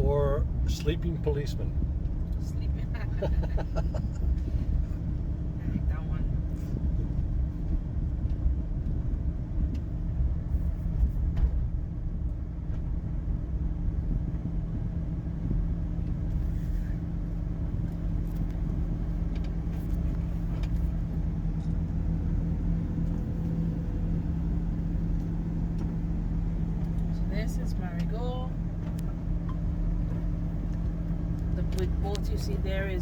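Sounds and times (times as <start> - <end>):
car engine running: 0.0 - 33.0
road rumble: 0.0 - 33.0
light clicks and rattles: 17.8 - 22.1, 25.1 - 32.6.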